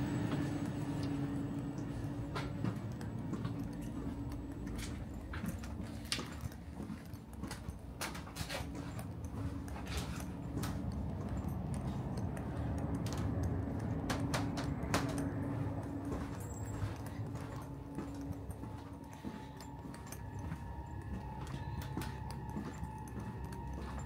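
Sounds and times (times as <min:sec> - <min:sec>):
stationary train humming: 0:00.0 - 0:24.0
sharp clicks and knocks: 0:07.3 - 0:16.2.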